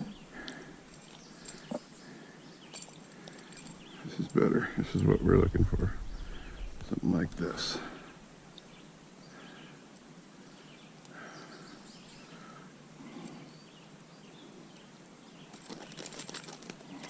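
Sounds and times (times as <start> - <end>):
dense crackling rustle: 15.4 - 17.0.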